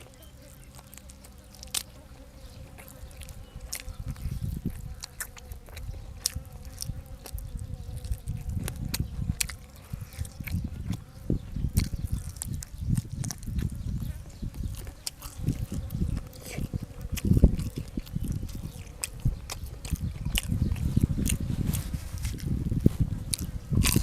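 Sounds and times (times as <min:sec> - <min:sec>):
person chewing and smacking: 0:00.0 - 0:24.0.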